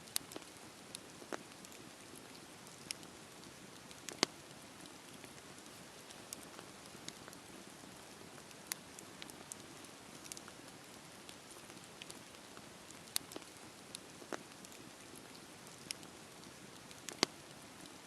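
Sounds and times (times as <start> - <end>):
wood fire crackling and popping: 0.0 - 18.0.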